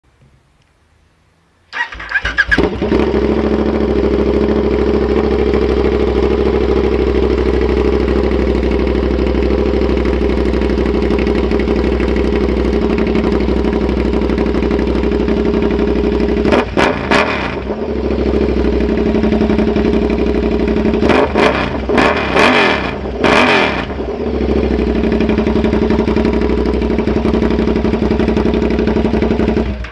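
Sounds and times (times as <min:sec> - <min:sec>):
motorcycle engine idling and revving: 0:01.8 - 0:29.9.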